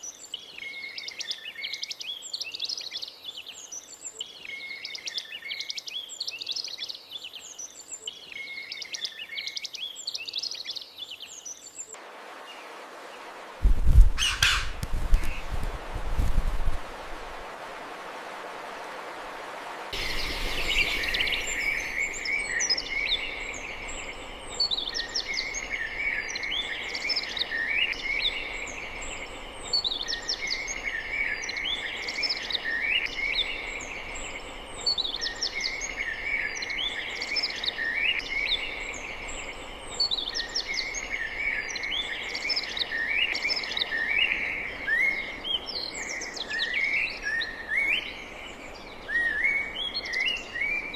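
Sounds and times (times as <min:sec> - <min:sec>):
background hiss: 0:00.0 - 0:50.9
songbird chattering: 0:14.2 - 0:15.4.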